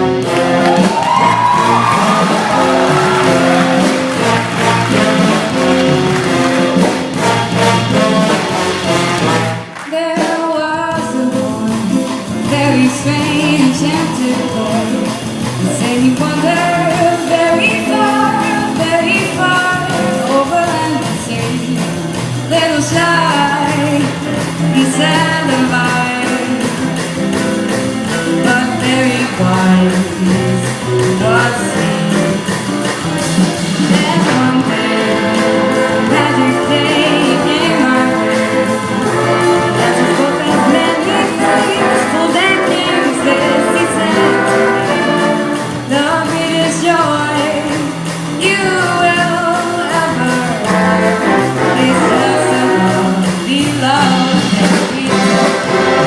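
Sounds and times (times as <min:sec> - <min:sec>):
steady bass line: 0:00.0 - 0:09.7, 0:12.4 - 0:56.0
trumpets and trombones melody: 0:00.0 - 0:09.9, 0:33.2 - 0:46.8, 0:50.2 - 0:56.0
big band playing: 0:00.0 - 0:56.0.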